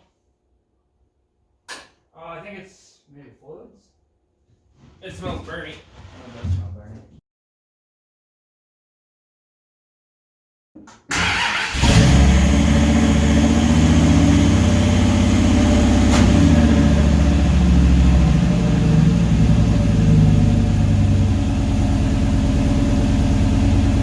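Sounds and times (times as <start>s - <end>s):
engine idling deeply: 12.0s - 24.0s.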